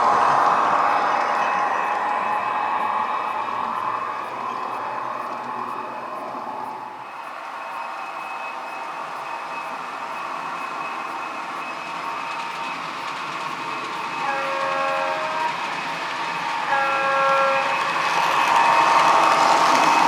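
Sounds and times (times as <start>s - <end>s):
diesel railcar engine running: 0.0s - 20.0s
short horn blasts: 14.2s - 15.5s, 16.7s - 17.8s.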